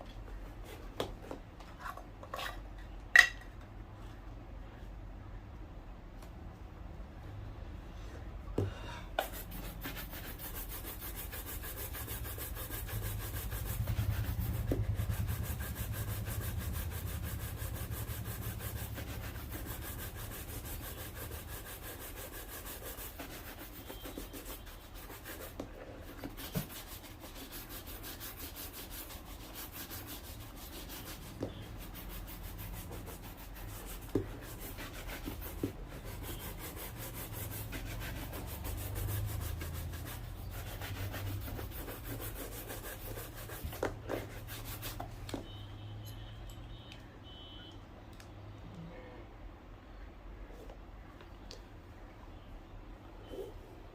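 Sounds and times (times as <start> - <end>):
brush rubbing on shoe: 9.2 - 45.5.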